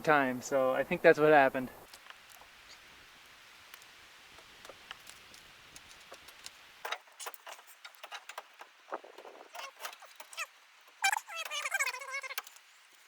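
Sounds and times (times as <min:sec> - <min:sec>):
low hiss: 0:00.0 - 0:13.0.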